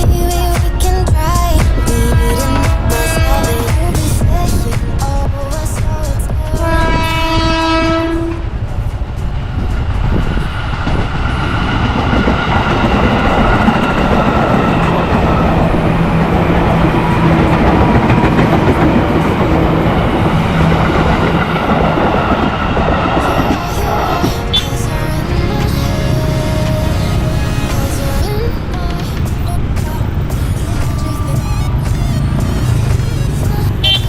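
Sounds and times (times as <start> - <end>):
steady whine: 0.0 - 34.0
train wheels clattering on rails: 2.3 - 24.8
train horn blast: 6.7 - 8.7, 21.9 - 28.2.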